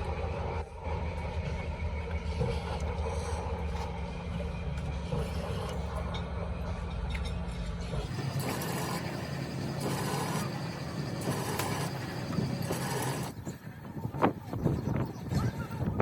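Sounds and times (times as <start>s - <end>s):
machine with hissing surges: 7.8s - 15.9s
motor humming: 8.0s - 15.3s.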